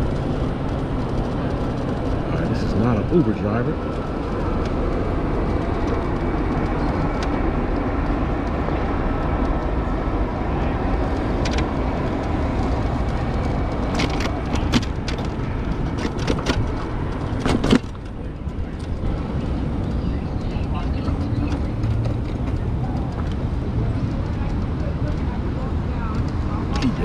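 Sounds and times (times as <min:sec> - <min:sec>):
road and traffic rushing: 0:00.0 - 0:27.0.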